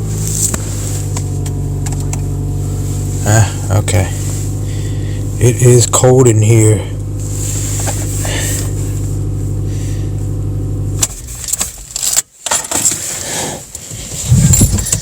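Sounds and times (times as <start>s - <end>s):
car engine idling: 0.0s - 15.0s
handling noises: 7.4s - 9.1s, 11.0s - 15.0s.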